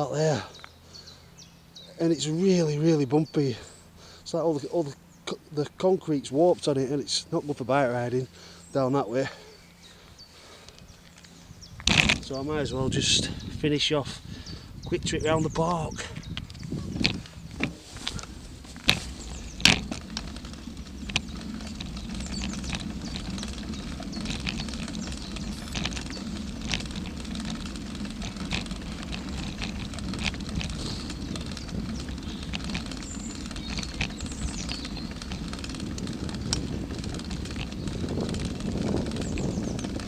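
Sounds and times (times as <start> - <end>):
bicycle rolling rumble: 0.0 - 40.0
bicycle clicks and rattles: 9.9 - 13.4, 14.4 - 40.0.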